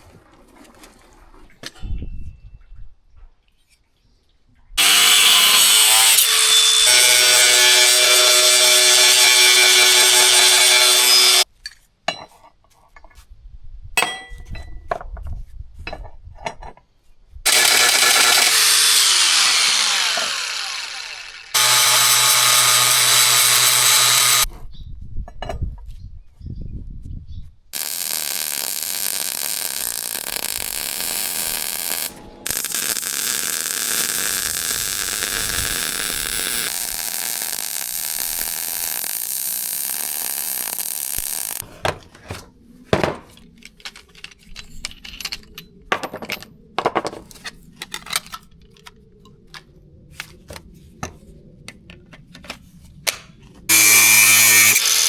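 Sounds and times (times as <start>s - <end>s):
power tool running in bursts: 4.8s - 11.4s, 17.5s - 24.5s, 27.8s - 41.6s, 53.7s - 55.0s.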